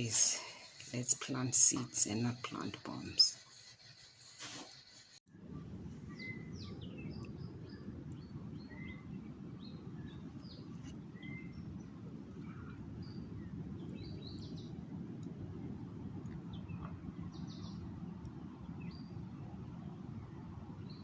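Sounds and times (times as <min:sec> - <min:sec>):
low outdoor rumble: 0:05.3 - 0:21.0.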